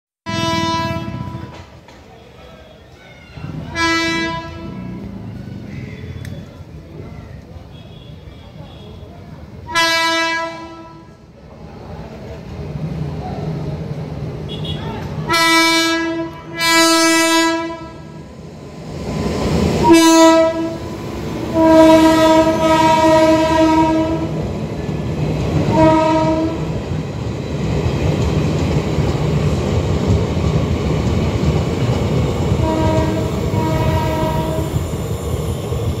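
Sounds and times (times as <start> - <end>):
train horn blasts: 0.2 - 1.7, 3.7 - 5.2, 9.7 - 11.2, 14.5 - 18.2, 19.8 - 20.8, 21.5 - 24.4, 25.7 - 26.7, 32.6 - 34.8
train wheels rumbling on rails: 0.3 - 9.7, 10.4 - 36.0.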